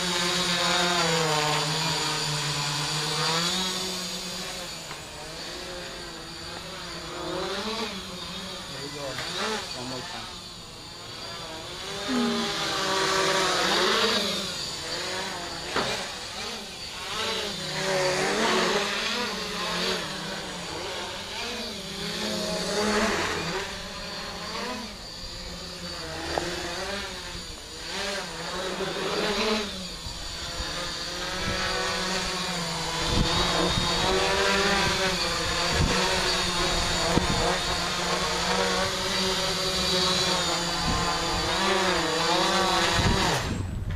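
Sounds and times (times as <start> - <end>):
drone motors whining: 0.0 - 43.9
wind rumbling on microphone: 33.0 - 37.8, 42.8 - 43.9.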